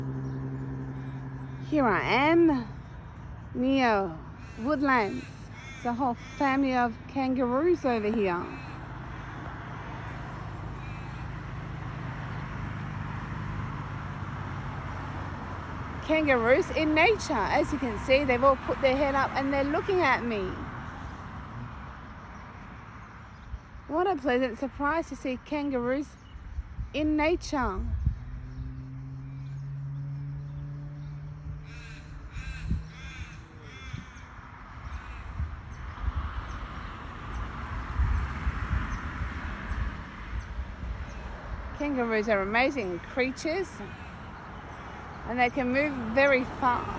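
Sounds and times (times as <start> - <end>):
vehicle hum with road noise: 0.0 - 46.9
wind rumbling on microphone: 0.0 - 46.9
crow cawing: 4.4 - 6.6, 8.5 - 10.0, 10.7 - 11.5, 31.6 - 35.5, 43.8 - 45.1.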